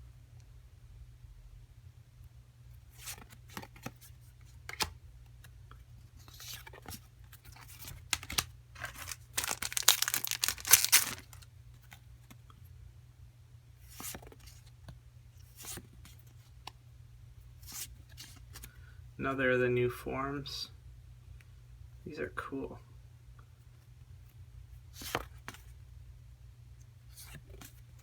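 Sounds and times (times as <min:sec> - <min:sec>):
cards clicking and rustling: 0:07.6 - 0:11.4
foil pack tearing and crinkling: 0:07.9 - 0:11.4.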